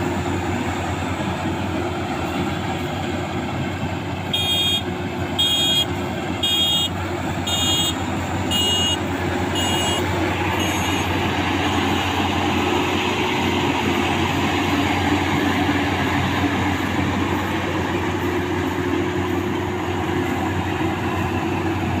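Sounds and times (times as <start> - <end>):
combine harvester running: 0.0 - 22.0
high electronic beep: 9.6 - 10.0, 10.6 - 11.1.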